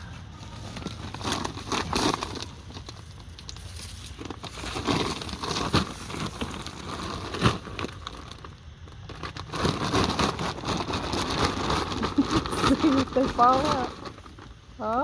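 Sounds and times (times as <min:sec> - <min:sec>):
plastic bag crinkling and rustling: 0:00.0 - 0:15.0.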